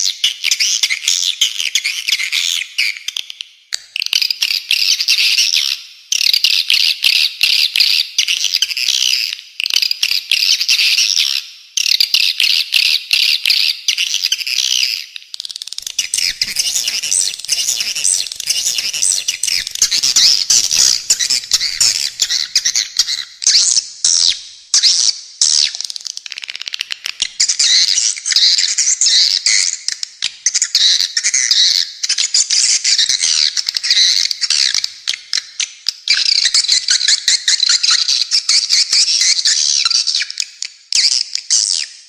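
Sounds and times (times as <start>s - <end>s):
harsh high bird chattering: 15.8s - 24.3s.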